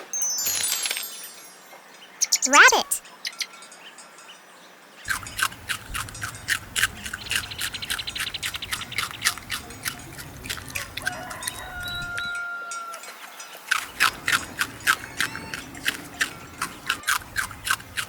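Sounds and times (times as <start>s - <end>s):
rabbit chewing: 5.1s - 12.3s, 13.7s - 18.0s.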